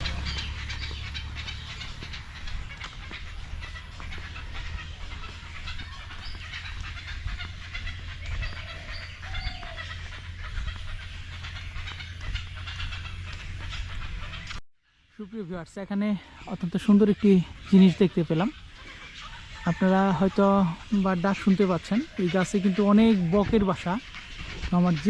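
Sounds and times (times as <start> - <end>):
low rumble: 0.0 - 14.6
herons and egrets calling: 0.0 - 25.0.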